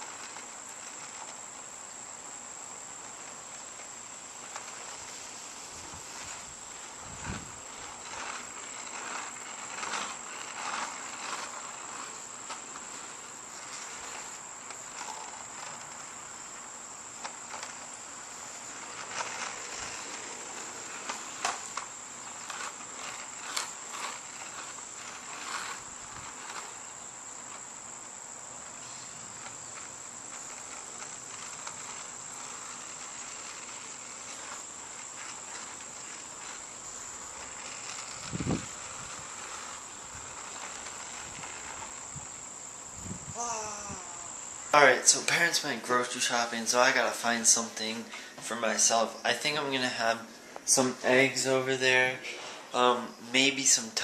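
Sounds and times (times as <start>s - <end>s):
short scraping noises: 4.3s - 16.4s, 17.1s - 27.6s, 28.7s - 54.0s
high-pitched insect drone: 4.8s - 47.9s.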